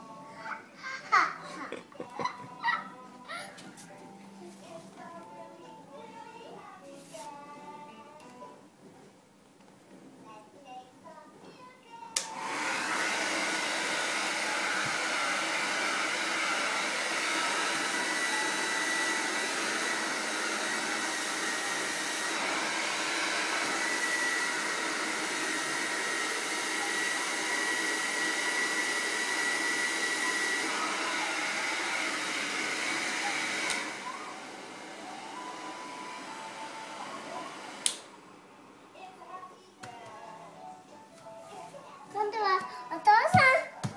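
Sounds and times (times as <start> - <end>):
hair dryer switch click: 12.2 - 12.7, 33.6 - 33.9, 37.8 - 38.1
hair dryer blowing: 12.2 - 38.2.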